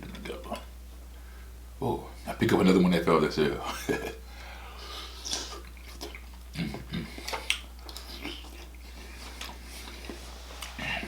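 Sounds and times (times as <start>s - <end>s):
person chewing wetly: 5.0s - 11.0s.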